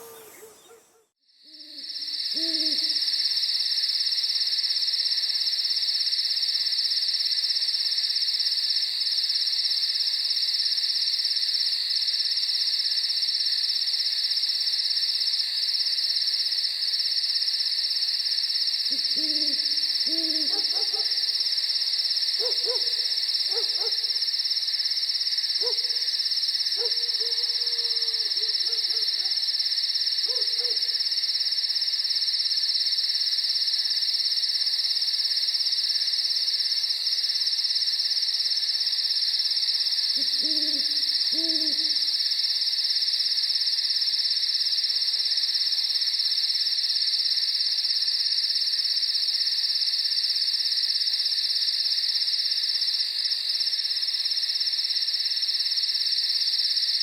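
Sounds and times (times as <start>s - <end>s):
owl hooting: 0.0s - 3.2s, 18.9s - 21.3s, 22.4s - 24.2s, 30.2s - 31.0s, 40.2s - 42.2s
insect chorus: 0.0s - 57.0s.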